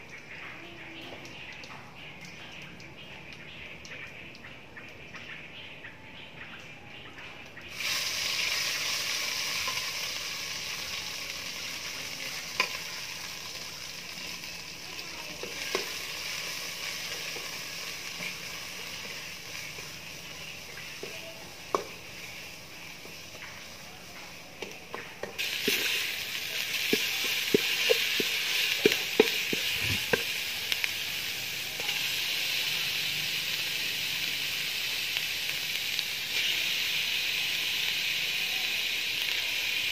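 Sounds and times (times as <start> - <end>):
paste sizzling in oil: 7.7 - 39.9
ladle tapping on pot: 26.9 - 30.3.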